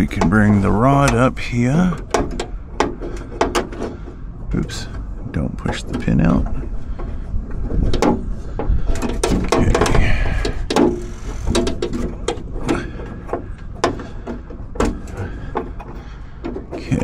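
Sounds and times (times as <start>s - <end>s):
metal door latch clicking and rattling: 8.9s - 15.2s.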